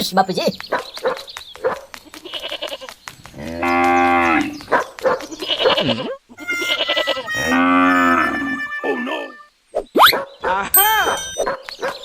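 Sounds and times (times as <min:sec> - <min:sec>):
cow mooing: 0:06.9 - 0:09.4.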